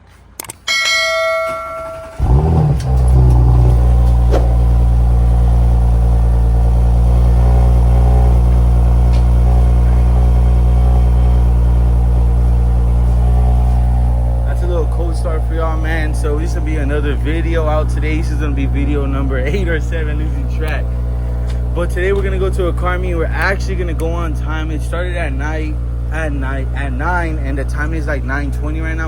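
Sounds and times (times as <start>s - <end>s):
car engine starting and idling: 1.2s - 29.0s.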